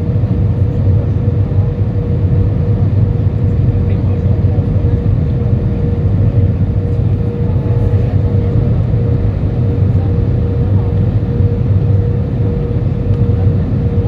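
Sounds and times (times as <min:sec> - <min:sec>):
airplane cabin engine rush: 0:00.0 - 0:14.0
constant thin hum: 0:00.0 - 0:14.0.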